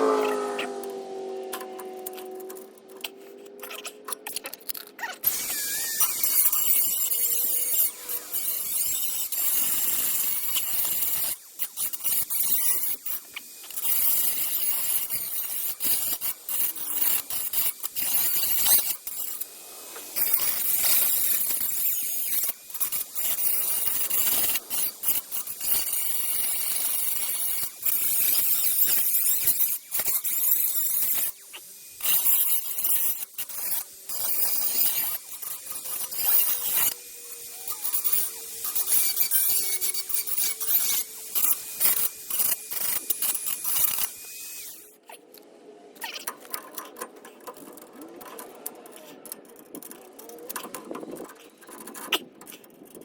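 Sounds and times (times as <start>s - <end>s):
rotary tool grinding metal: 0.0s - 45.4s, 46.0s - 53.0s.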